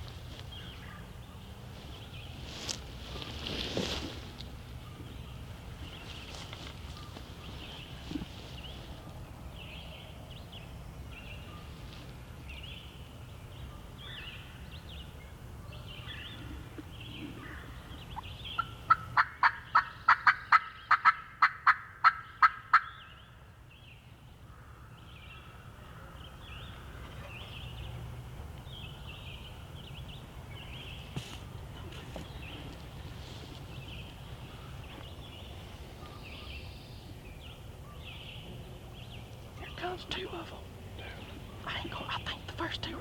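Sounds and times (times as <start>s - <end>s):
faint songbird chirps: 22.2s - 43.0s.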